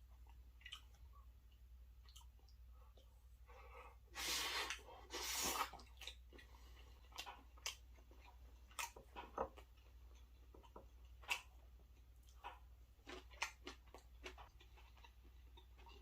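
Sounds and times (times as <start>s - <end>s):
close chewing and mouth sounds: 0.0s - 16.0s
wet clicks and smacks: 0.3s - 3.1s.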